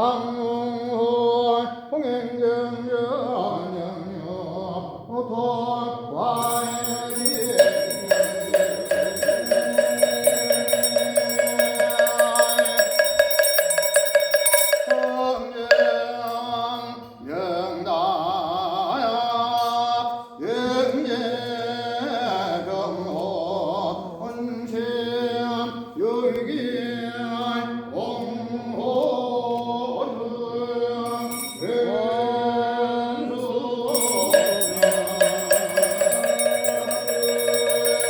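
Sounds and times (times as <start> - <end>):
person chanting long wavering phrases: 6.4 - 13.1, 33.2 - 38.0
bell jingling: 6.4 - 16.6, 31.1 - 31.8, 33.9 - 38.0.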